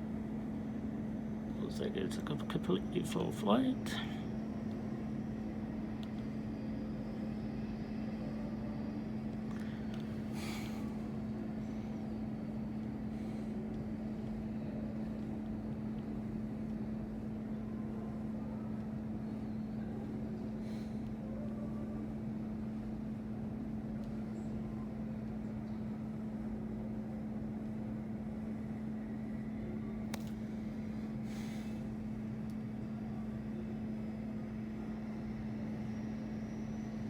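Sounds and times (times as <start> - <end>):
machine droning hum: 0.0 - 37.0
faint click: 30.1 - 30.4.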